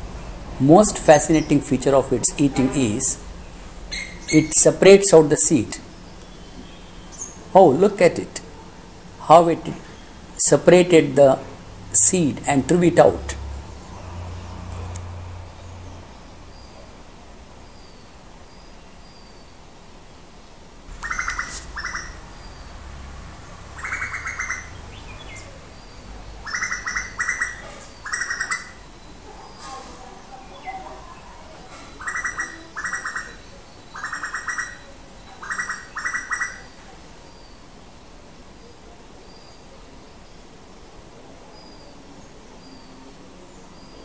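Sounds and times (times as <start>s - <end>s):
bird calling in harsh pulsed notes: 3.1s - 5.1s, 20.9s - 29.2s, 31.9s - 36.8s.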